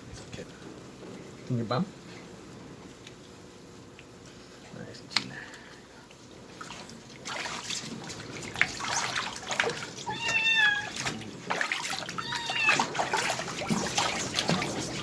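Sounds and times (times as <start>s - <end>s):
water splashing: 6.6s - 15.0s
kitten mewing: 10.0s - 11.2s, 12.1s - 13.2s.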